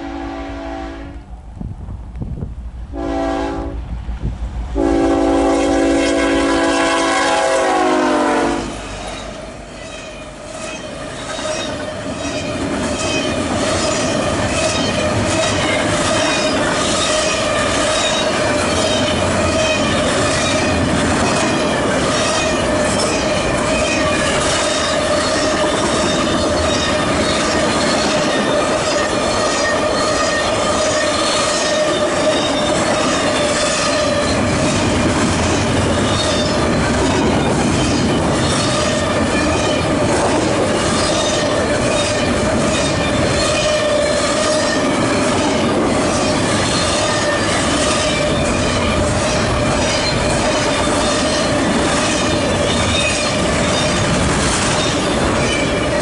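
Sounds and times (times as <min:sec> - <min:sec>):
train horn blasts: 0:00.0 - 0:01.3, 0:02.9 - 0:03.9, 0:04.8 - 0:08.9, 0:28.1 - 0:34.8, 0:38.5 - 0:39.9
rail noise: 0:00.0 - 0:56.0
ringing wheel squeal: 0:08.9 - 0:34.9, 0:35.8 - 0:39.9, 0:40.9 - 0:54.2
wheels clickety-clack: 0:10.6 - 0:56.0.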